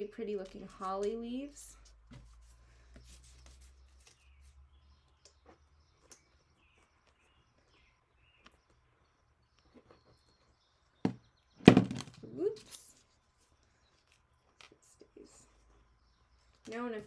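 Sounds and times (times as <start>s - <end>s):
craft materials handled by hand: 0.1s - 17.0s.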